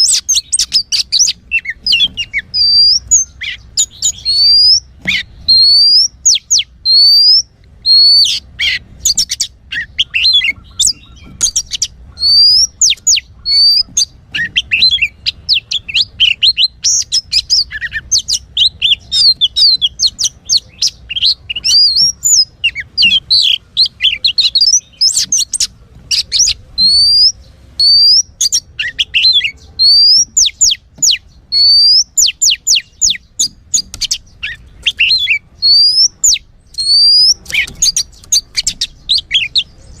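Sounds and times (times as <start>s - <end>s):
songbird singing whistles and chirps: 0.0s - 40.0s.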